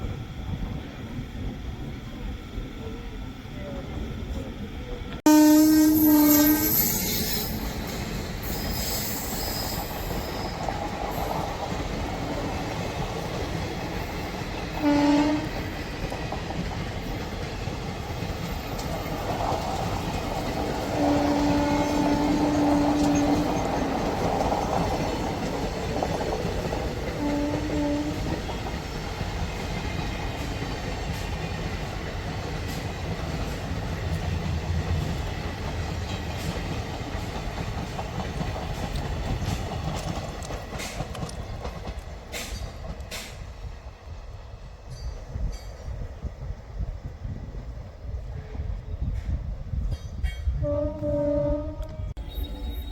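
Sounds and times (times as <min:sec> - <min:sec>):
train rumbling over rails: 0:00.0 - 0:52.9
train horn blasts: 0:05.2 - 0:07.8, 0:14.8 - 0:15.8, 0:20.8 - 0:23.8, 0:27.1 - 0:28.6, 0:50.6 - 0:52.9.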